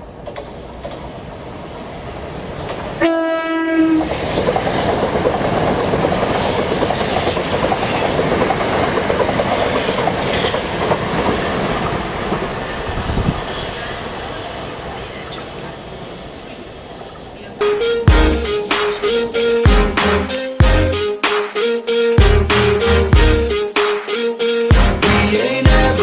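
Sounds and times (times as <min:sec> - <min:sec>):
short train horn note: 0:03.0 - 0:04.1
train wheels rumbling: 0:03.8 - 0:15.2
rail clatter: 0:03.9 - 0:13.4.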